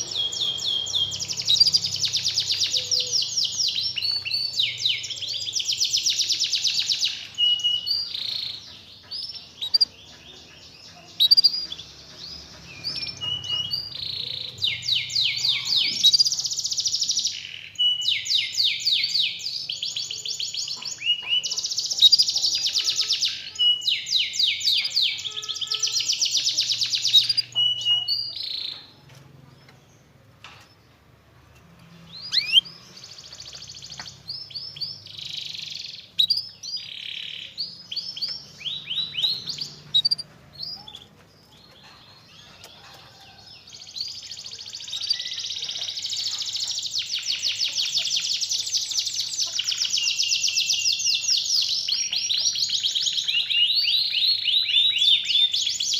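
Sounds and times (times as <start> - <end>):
canary singing rolling trills: 0.0 - 55.9.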